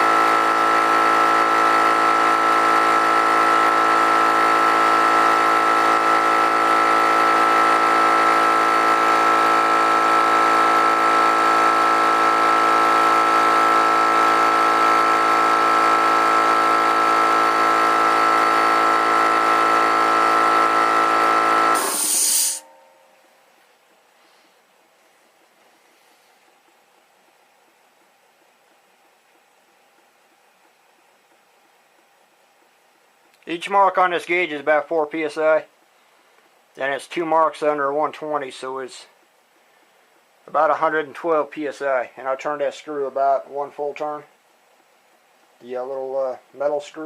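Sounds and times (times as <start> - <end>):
air compressor whining: 0.0 - 22.8.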